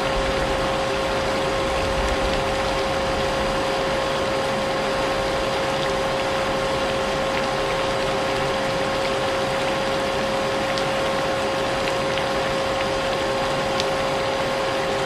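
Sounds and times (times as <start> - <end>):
vacuum cleaner running: 0.0 - 7.0
rain pattering: 0.0 - 14.2.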